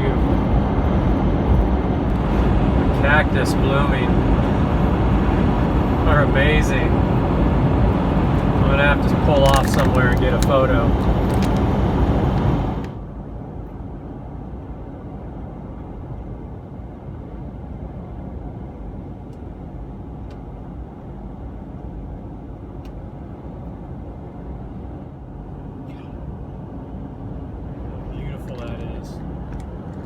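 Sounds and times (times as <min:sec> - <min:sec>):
pickup engine noise: 0:00.0 - 0:13.0
road noise in cab: 0:00.0 - 0:30.0.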